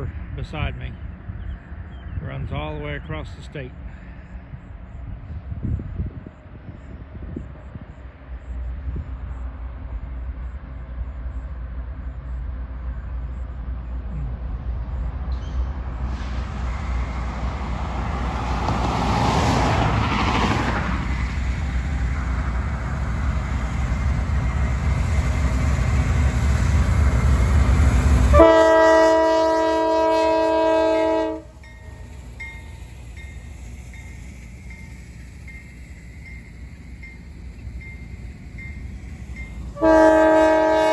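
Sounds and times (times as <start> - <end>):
locomotive air horn chord: 28.2 - 31.6, 39.8 - 40.9.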